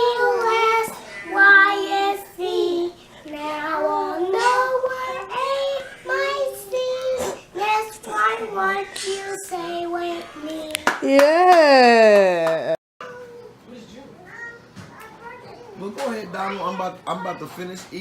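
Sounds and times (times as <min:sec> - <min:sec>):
child singing: 0:00.0 - 0:10.9.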